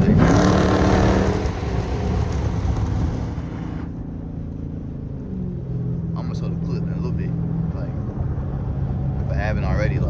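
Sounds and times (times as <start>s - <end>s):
loud car exhaust: 0.0s - 4.0s.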